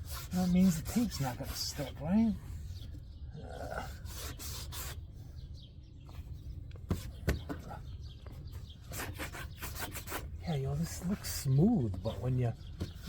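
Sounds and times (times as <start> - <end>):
cloth rubbing car trim: 0.0 - 2.2.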